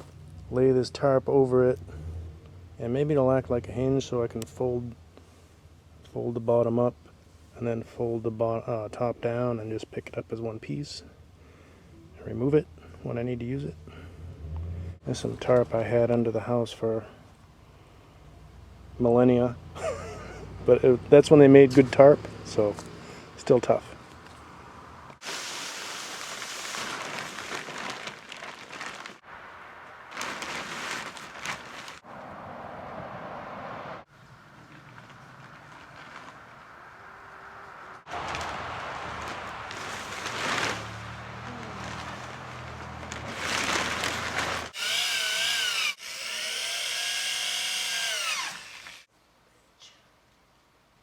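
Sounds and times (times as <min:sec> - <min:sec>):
plastic tarp crinkling and rustling: 0:25.2 - 0:32.1, 0:34.6 - 0:36.9, 0:38.1 - 0:44.8
electric drill whine: 0:44.8 - 0:49.1.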